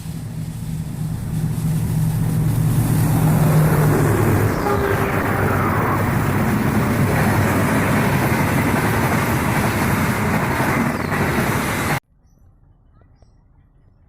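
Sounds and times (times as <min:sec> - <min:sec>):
locomotive train rumble: 0:00.0 - 0:12.0.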